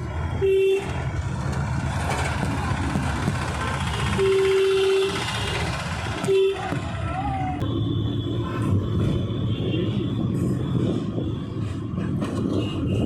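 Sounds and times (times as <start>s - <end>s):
vehicle engine and road rumble: 0.0s - 13.0s
car horn honking: 3.8s - 6.9s.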